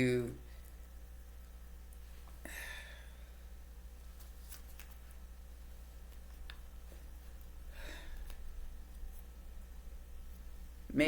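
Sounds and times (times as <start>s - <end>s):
low electrical hum: 0.0s - 11.0s
breath: 2.4s - 3.3s, 7.7s - 8.3s
cards clicking and rustling: 4.2s - 5.2s.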